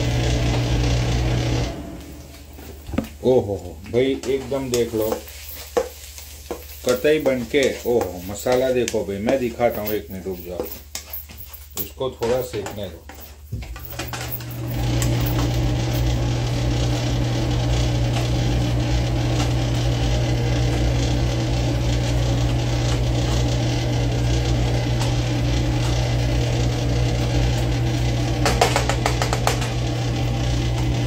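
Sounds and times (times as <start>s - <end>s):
masala sizzling in a pan: 4.6s - 8.3s.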